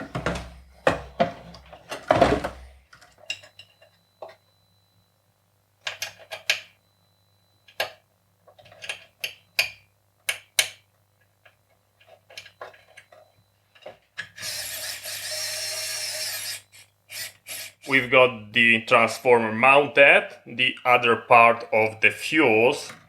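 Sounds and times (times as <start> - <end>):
screw being driven in rasping: 14.4 - 17.9.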